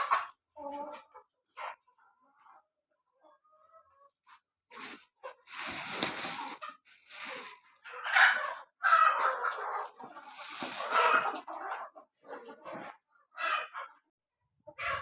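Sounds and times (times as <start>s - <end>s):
chicken clucking: 0.0s - 15.0s
rustling and scuffling: 4.7s - 7.9s, 9.5s - 11.4s
chicken squawking: 4.7s - 14.0s.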